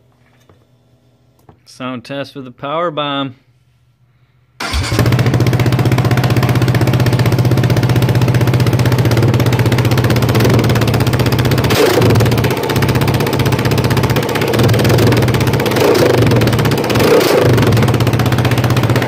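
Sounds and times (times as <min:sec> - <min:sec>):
quad engine idling and revving: 0:04.7 - 0:19.0.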